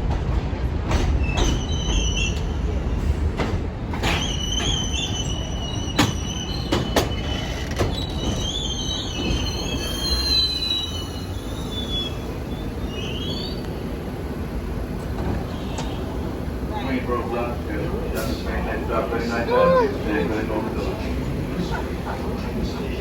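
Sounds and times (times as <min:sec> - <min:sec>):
train low rumble: 0:00.0 - 0:23.0
subway wheels squealing: 0:00.9 - 0:23.0.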